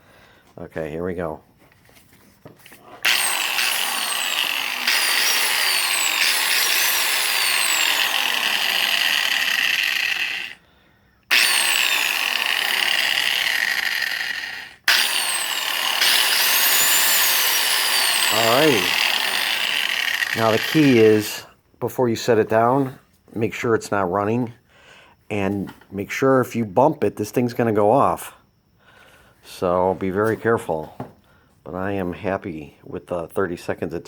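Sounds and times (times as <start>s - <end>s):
angle grinder motor running: 3.0s - 10.6s, 11.3s - 21.4s.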